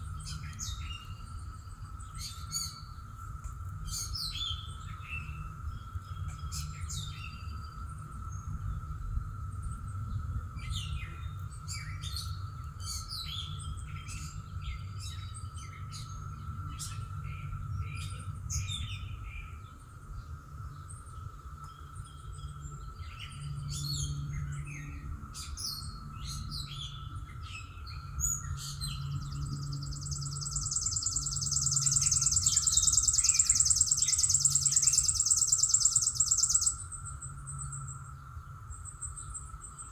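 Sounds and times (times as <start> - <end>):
faint high hum: 0.0 - 39.9
low background rumble: 0.0 - 39.9
songbirds chirping and singing: 0.0 - 39.9
loud high pulsing trill: 29.7 - 36.8.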